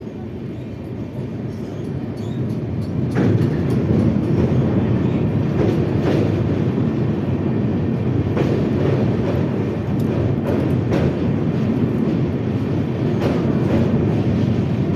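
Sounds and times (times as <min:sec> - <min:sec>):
train wheels rumbling on track: 0:00.0 - 0:14.9
rail joints clanking: 0:01.7 - 0:06.9.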